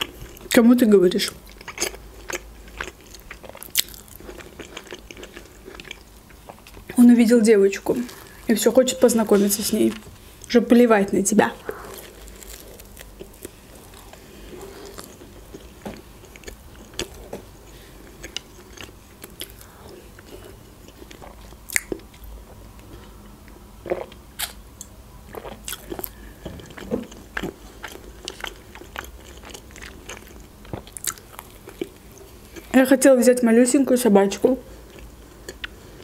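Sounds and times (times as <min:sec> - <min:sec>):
chewing and biting bread: 0:01.4 - 0:07.0, 0:11.6 - 0:22.3, 0:25.3 - 0:32.7.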